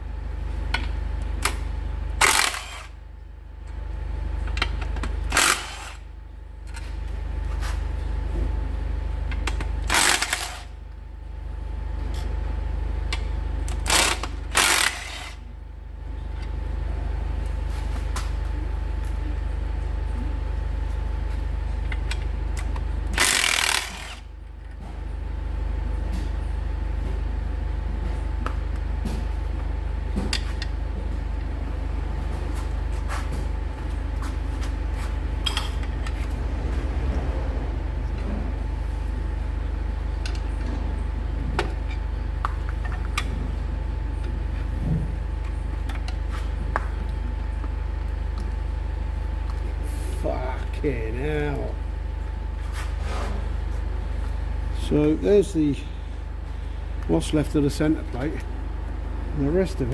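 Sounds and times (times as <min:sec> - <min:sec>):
steady low hum: 0:00.0 - 0:59.9
air tool burst: 0:02.2 - 0:02.9, 0:23.2 - 0:24.2.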